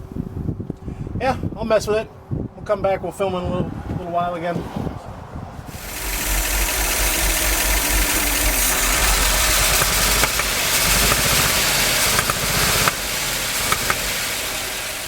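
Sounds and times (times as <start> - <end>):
truck engine fast idle: 5.7 - 15.0.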